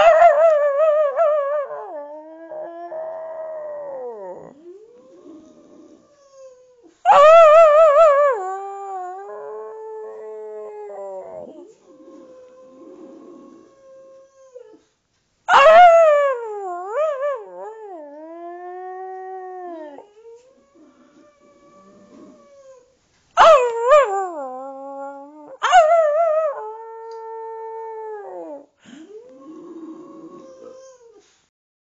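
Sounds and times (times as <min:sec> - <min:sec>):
dog howling: 0:00.0 - 0:14.8, 0:15.5 - 0:28.7.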